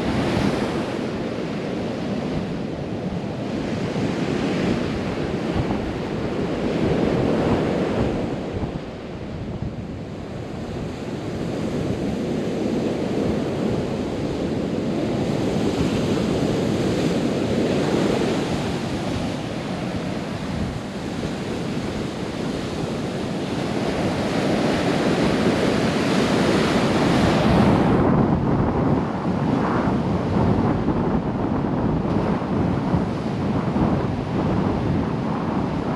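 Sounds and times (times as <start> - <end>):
wind buffeting microphone: 0.0 - 35.9
surf breaking on sandy beach: 10.7 - 35.9.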